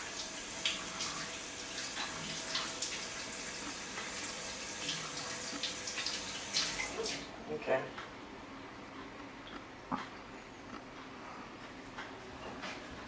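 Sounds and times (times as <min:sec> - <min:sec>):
water running from a tap: 0:00.0 - 0:07.3.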